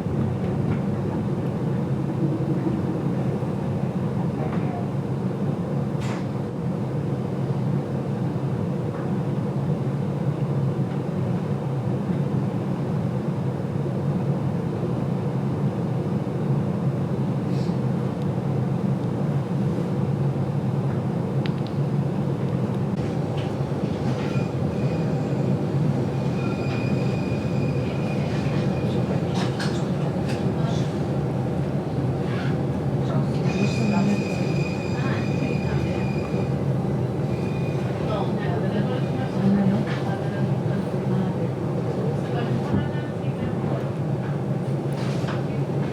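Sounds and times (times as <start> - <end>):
train wheels rumbling on track: 19.1 - 45.9
faint high squeal: 26.2 - 28.9, 33.5 - 36.5, 37.3 - 37.9.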